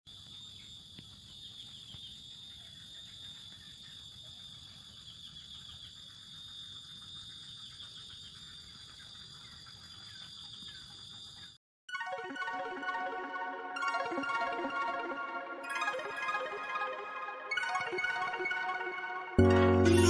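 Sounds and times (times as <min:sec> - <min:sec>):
small birds chirping: 0:00.1 - 0:11.6.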